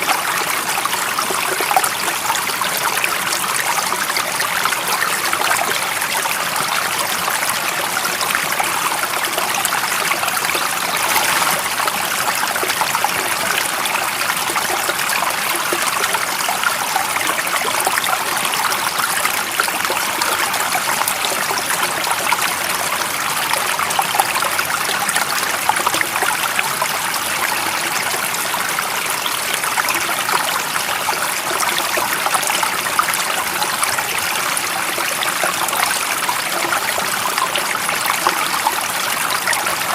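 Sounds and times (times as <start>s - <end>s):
stream water trickling over stones: 0.0s - 39.9s.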